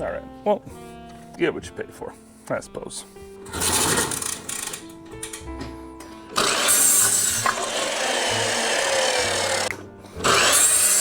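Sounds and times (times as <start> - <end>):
power saw cutting wood: 3.5 - 4.9, 6.3 - 11.0.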